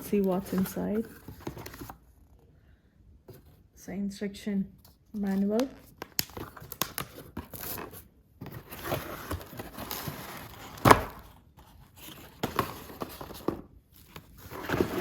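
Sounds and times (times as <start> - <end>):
packaging rustling and crinkling: 0.0 - 2.0, 5.2 - 15.0.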